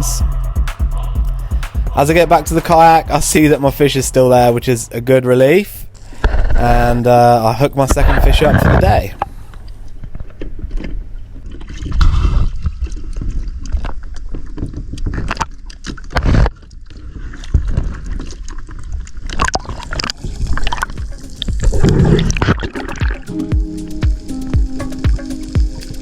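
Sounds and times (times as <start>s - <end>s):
background music: 0.0s - 5.7s, 20.2s - 26.0s
water sloshing and splashing: 9.7s - 23.4s.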